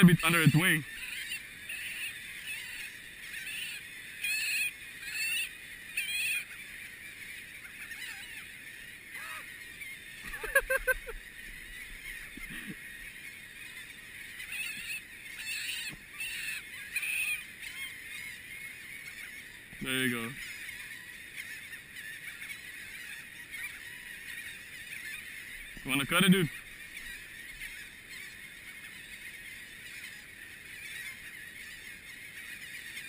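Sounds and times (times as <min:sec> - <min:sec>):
gulls squawking: 0:00.0 - 0:33.0.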